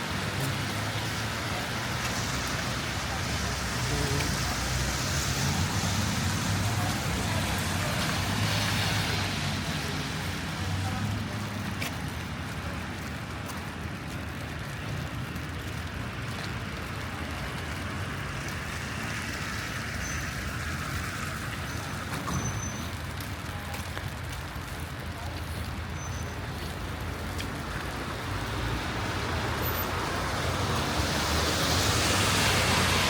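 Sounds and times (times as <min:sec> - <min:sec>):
hiss of passing traffic: 0:00.0 - 0:12.7, 0:25.0 - 0:33.0.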